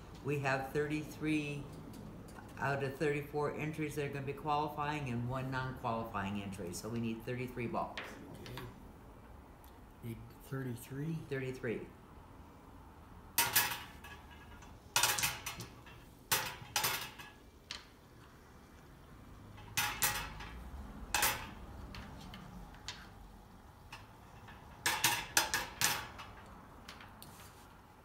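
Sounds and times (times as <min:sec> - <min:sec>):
draw balls clacking: 0:13.4 - 0:18.8, 0:19.4 - 0:27.6.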